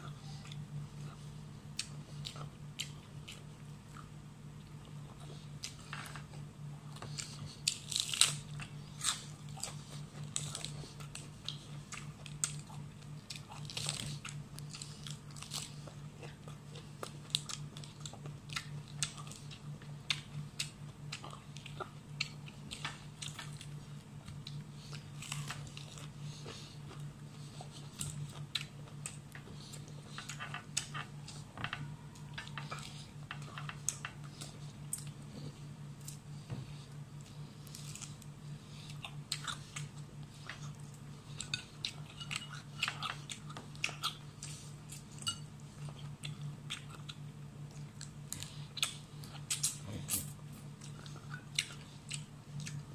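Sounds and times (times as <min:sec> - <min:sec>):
crunching and chewing leafy greens: 0:00.0 - 0:52.9
steady low hum: 0:00.0 - 0:52.9.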